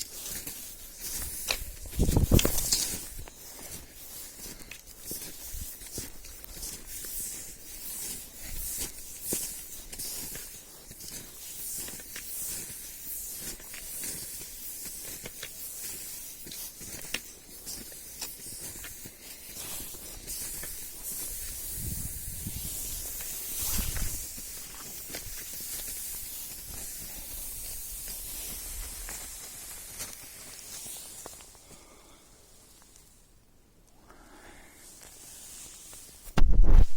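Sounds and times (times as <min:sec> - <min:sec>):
skis swishing over snow: 0:00.0 - 0:32.0, 0:34.8 - 0:36.9.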